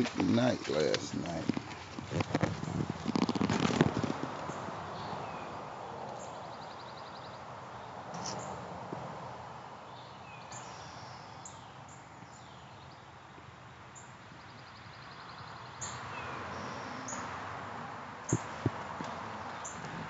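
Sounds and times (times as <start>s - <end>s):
wild birds singing and calling: 0.0s - 8.6s, 9.8s - 17.6s, 18.3s - 20.0s
faint outdoor background: 0.0s - 20.0s.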